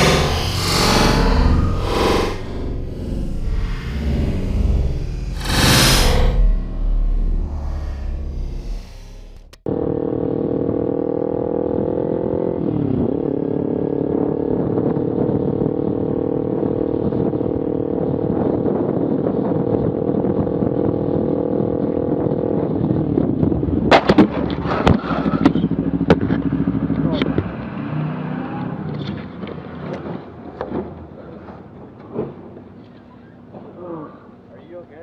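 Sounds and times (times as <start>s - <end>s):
sharp bangs and clatter: 0.0s - 9.7s
motorcycle engine running: 0.0s - 10.4s.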